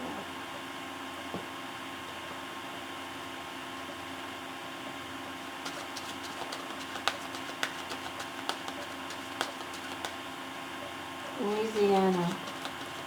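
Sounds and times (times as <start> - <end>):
mechanical hum: 0.0 - 13.0
cards being shuffled: 5.6 - 10.3, 11.4 - 13.0.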